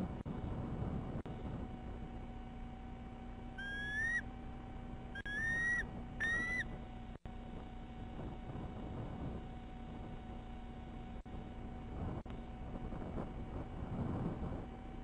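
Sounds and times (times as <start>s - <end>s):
bird whistling rising notes: 3.6s - 4.3s, 5.1s - 6.8s.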